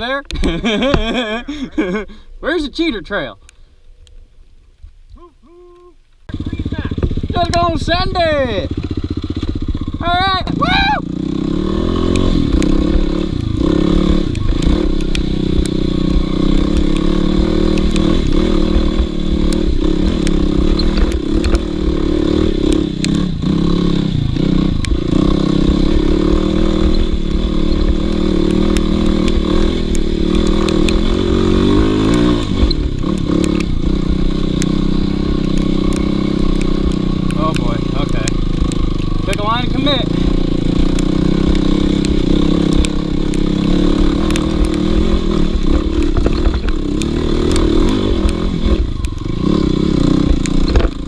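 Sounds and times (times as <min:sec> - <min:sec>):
dirt bike engine under load: 0:11.8 - 0:51.0
bike knocking and clattering: 0:40.3 - 0:49.0, 0:50.1 - 0:51.0.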